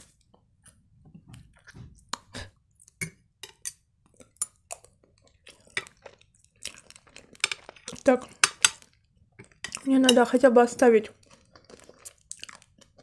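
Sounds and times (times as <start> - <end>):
person chewing food: 0.1 - 10.2, 11.1 - 13.0.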